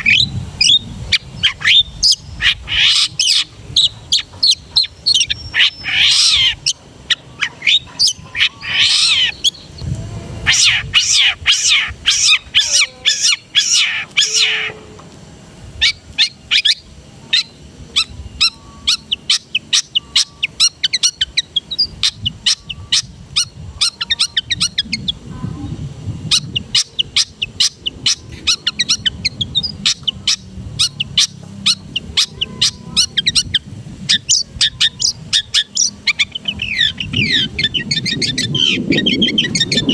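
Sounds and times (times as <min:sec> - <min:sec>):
bird singing sharp chirps: 0:00.0 - 0:09.8, 0:10.5 - 0:14.8, 0:26.2 - 0:39.9.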